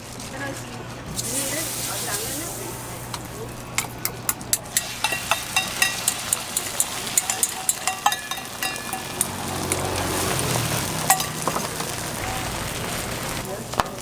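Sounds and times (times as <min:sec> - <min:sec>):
food sizzling on a griddle: 0:01.1 - 0:03.6, 0:04.6 - 0:14.0
utensil clinking against bowl: 0:03.1 - 0:12.0.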